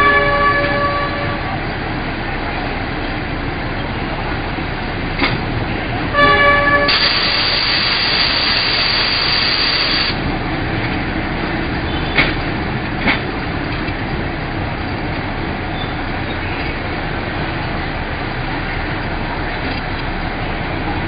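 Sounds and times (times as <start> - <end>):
train rumbling slowly: 0.0 - 21.0
loud hiss: 6.9 - 10.2.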